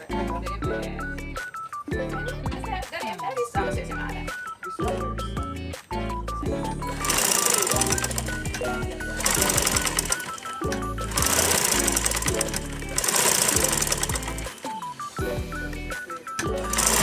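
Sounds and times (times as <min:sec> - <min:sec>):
music playing: 0:00.0 - 0:17.0
sewing machine clattering: 0:06.9 - 0:15.0, 0:16.4 - 0:17.0.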